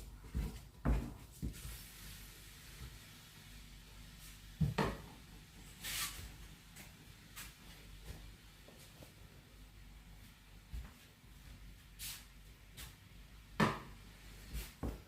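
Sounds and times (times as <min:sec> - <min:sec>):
short hiss: 0:05.8 - 0:06.3.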